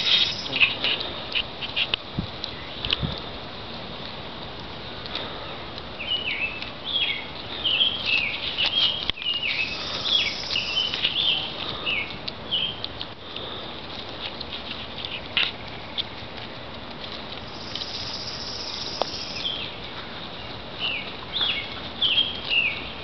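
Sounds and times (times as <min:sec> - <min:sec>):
small bird chirping: 0:00.0 - 0:00.8, 0:06.0 - 0:12.8, 0:17.5 - 0:19.8
goats rustling leaves and twigs: 0:00.0 - 0:23.0.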